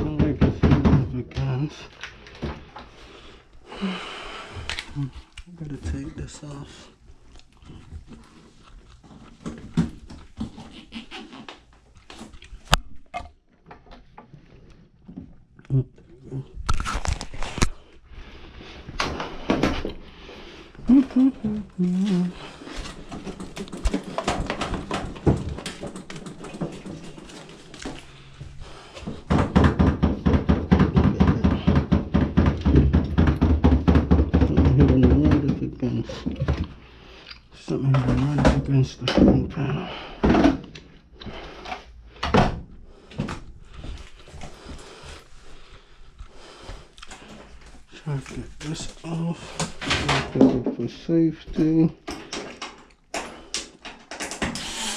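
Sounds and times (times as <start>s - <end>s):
rapid clattering knocks: 29.0s - 35.8s
clicks and knocks of tools: 52.0s - 54.7s.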